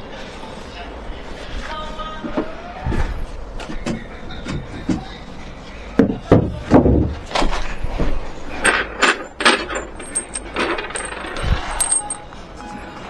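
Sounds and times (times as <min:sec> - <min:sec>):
hard objects knocking and clattering: 0:06.0 - 0:12.2.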